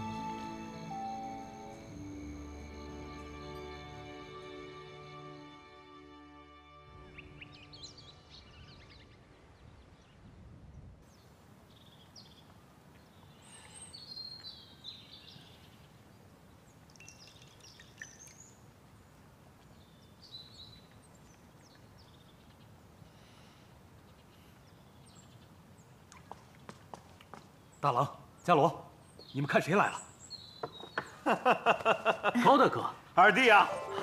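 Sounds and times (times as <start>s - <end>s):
faint outdoor background: 0.0s - 34.0s
small birds chirping: 11.1s - 34.0s.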